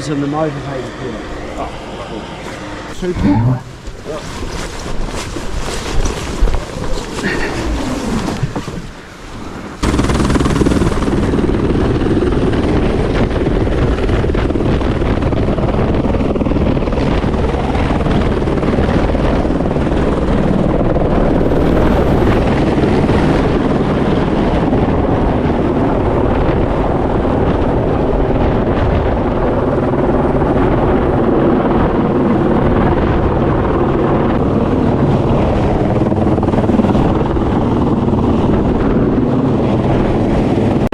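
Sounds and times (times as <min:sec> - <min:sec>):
jet boat motor droning: 0:00.0 - 0:04.9, 0:34.4 - 0:38.6.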